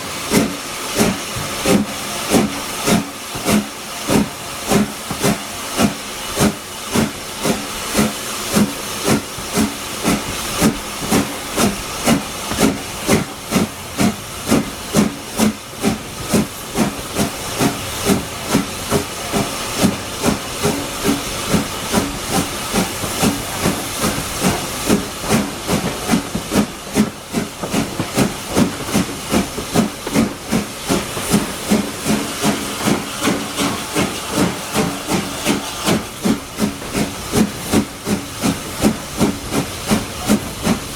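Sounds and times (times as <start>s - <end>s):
continuous steam hiss: 0.0s - 40.9s
steam locomotive exhaust beats: 0.0s - 40.9s.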